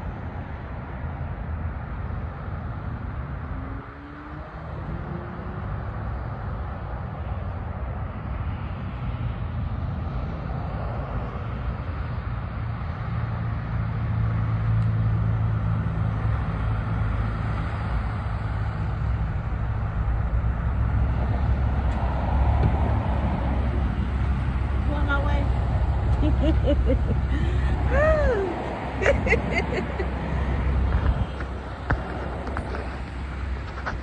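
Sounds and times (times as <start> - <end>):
road noise: 0.0 - 34.0
truck engine humming: 14.5 - 34.0.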